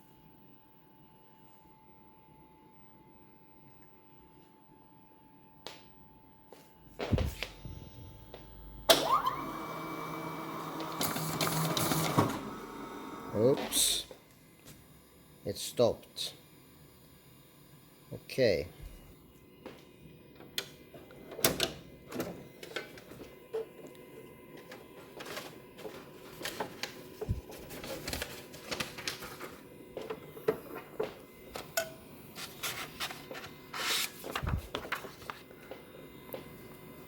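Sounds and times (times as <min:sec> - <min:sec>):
paper rustling: 0:24.6 - 0:30.1, 0:32.4 - 0:35.6.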